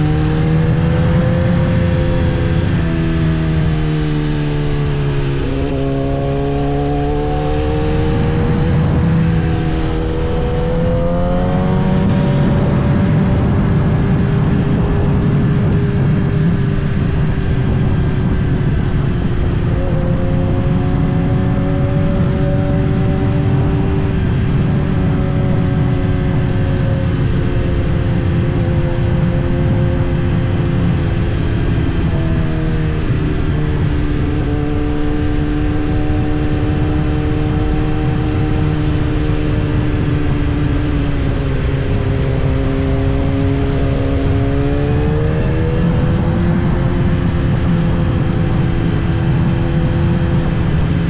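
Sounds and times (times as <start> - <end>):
motorcycle engine running: 0.0 - 51.0
wind rumble on microphone: 0.0 - 51.0.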